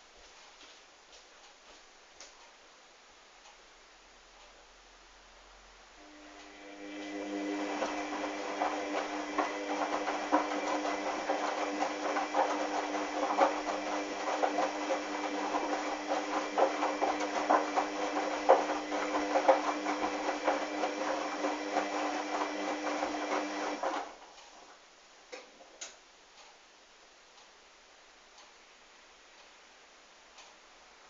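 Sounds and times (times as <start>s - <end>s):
washing machine motor hum: 6.0s - 24.4s.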